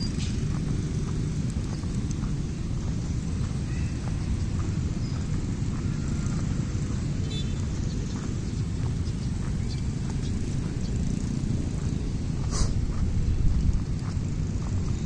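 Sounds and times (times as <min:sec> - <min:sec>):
faint ticks and chirps: 0:00.0 - 0:12.4.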